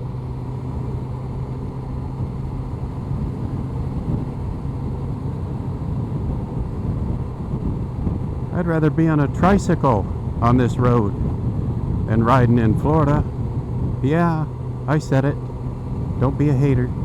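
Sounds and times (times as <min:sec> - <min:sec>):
motorcycle engine humming: 0:00.0 - 0:17.0
wind and road noise: 0:00.0 - 0:17.0.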